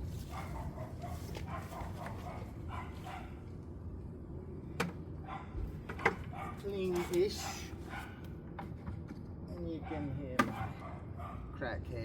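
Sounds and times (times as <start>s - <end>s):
dog barking: 0.3s - 3.4s, 5.2s - 8.2s, 9.8s - 11.6s.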